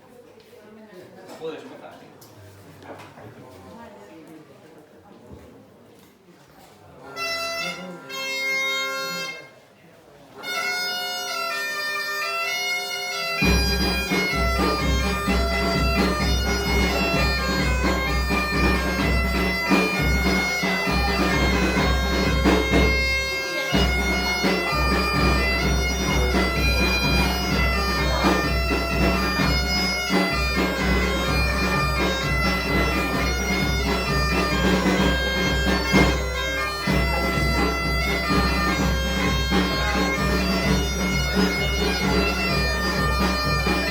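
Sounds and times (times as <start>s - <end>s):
folk band playing: 7.0s - 9.7s, 10.3s - 43.9s
bagpipe melody: 7.1s - 9.5s, 10.4s - 43.9s.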